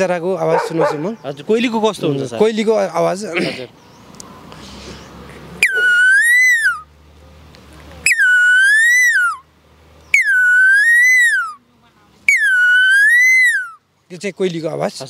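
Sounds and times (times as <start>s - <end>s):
man imitating bird call: 5.6s - 6.8s, 8.1s - 9.4s, 10.1s - 11.6s, 12.3s - 13.8s.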